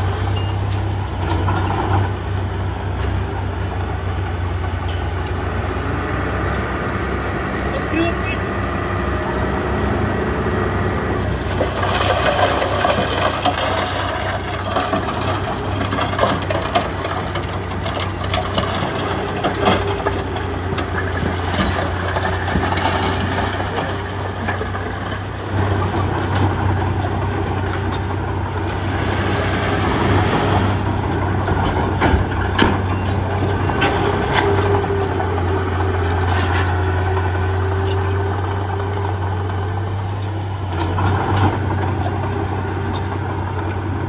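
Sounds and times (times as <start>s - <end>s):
diesel engine running: 0.0s - 44.0s
metallic clanks and knocks: 11.3s - 43.8s.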